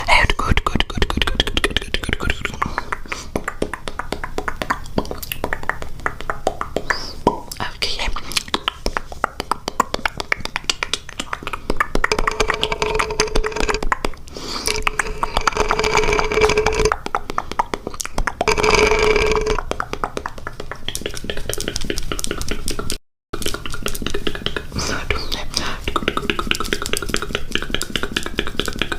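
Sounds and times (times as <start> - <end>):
wet mouth clicks and smacks: 0.4 - 12.5, 19.7 - 28.9.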